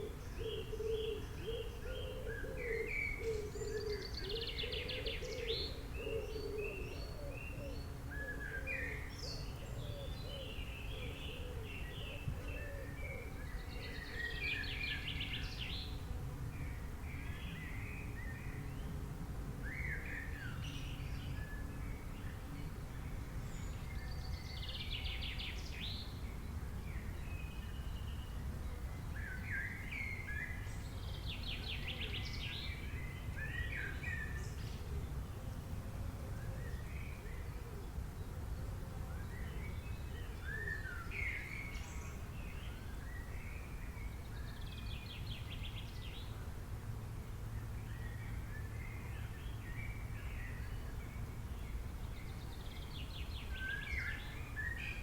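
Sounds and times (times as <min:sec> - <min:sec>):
wild birds chirping: 0:00.0 - 0:16.0, 0:47.5 - 0:55.0.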